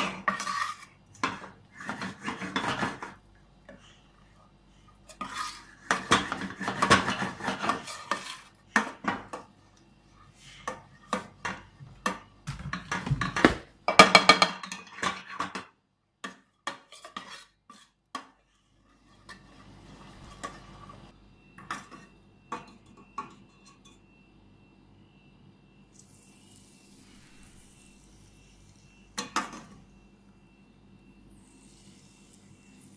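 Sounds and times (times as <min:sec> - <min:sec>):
dishes and utensils clattering: 0:00.0 - 0:03.9, 0:05.1 - 0:09.5, 0:10.6 - 0:15.7.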